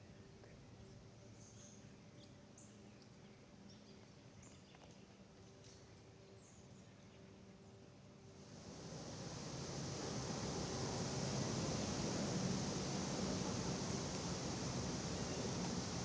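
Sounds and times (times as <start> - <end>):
soft rushing hiss: 8.2 - 16.0.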